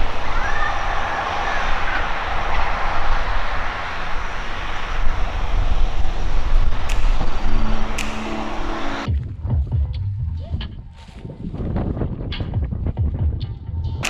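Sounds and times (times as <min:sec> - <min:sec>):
sharp clicks: 0:06.6 - 0:09.1.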